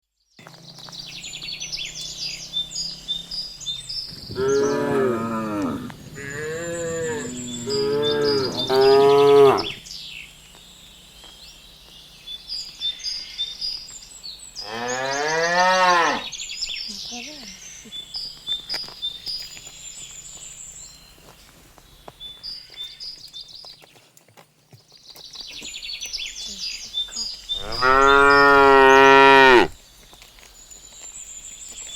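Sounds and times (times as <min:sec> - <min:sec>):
high chirping: 0:00.8 - 0:09.8, 0:26.4 - 0:29.8
cattle mooing: 0:04.3 - 0:09.8, 0:27.6 - 0:29.8.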